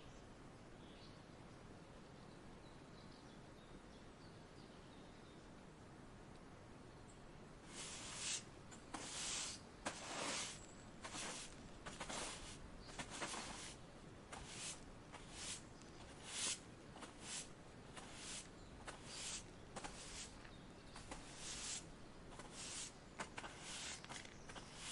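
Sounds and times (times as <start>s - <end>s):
dry leaves rustling: 7.7s - 20.4s.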